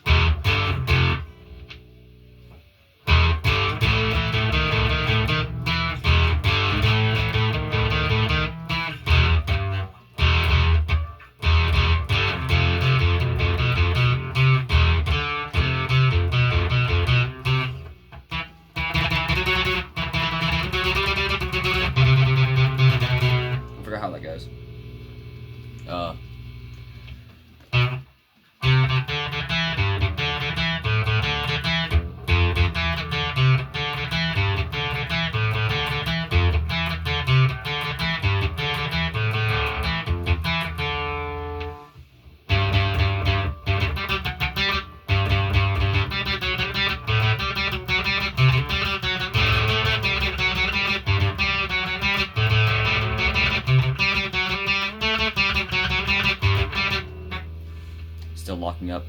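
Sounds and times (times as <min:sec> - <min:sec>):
rhythmic low end: 0:00.0 - 0:41.2
electric guitar riff: 0:00.0 - 0:59.0.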